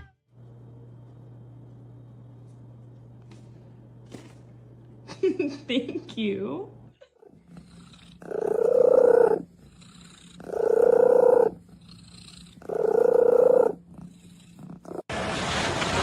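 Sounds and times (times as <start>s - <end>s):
animal making long calls: 10.1s - 13.8s.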